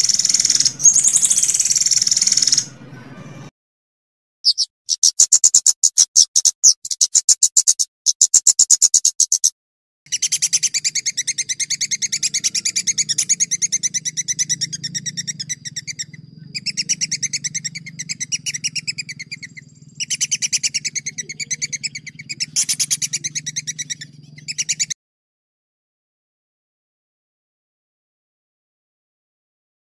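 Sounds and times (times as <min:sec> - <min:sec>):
songbird singing rapid rolls: 0:00.0 - 0:03.5, 0:10.1 - 0:25.0.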